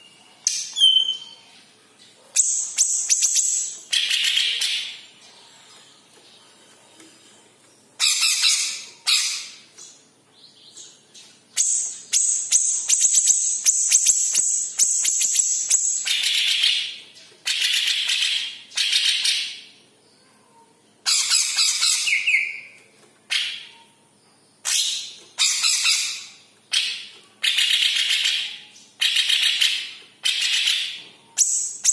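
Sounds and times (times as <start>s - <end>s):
bird chattering song: 0.0s - 1.5s, 24.6s - 31.9s.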